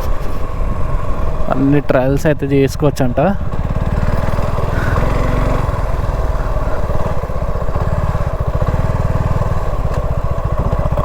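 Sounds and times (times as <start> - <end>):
motorcycle engine chugging: 0.0 - 11.0.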